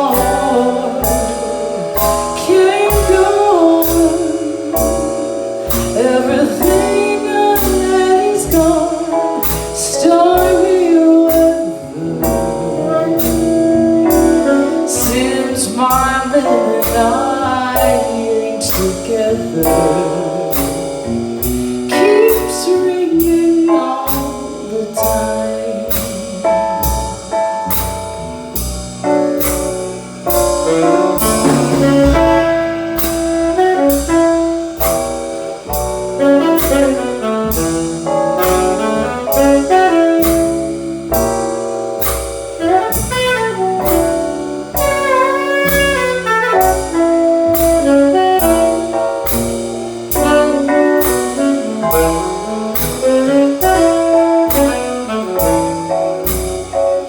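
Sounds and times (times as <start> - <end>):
jazz band accompaniment: 0.0 - 57.0
piano chords: 0.0 - 57.0
saxophone solo: 12.6 - 15.9, 30.6 - 35.0, 36.1 - 41.2, 42.6 - 49.6, 50.2 - 56.7.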